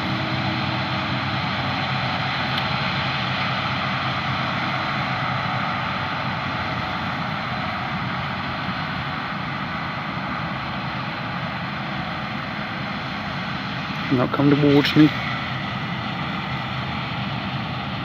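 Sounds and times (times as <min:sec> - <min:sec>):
combine harvester drone: 0:00.0 - 0:18.0.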